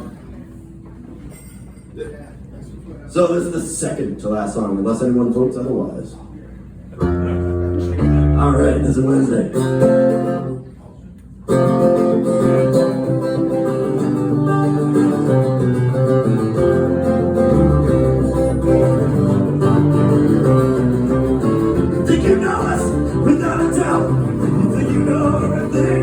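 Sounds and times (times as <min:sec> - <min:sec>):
acoustic guitar strumming chords: 0:07.0 - 0:10.7, 0:11.5 - 0:26.0.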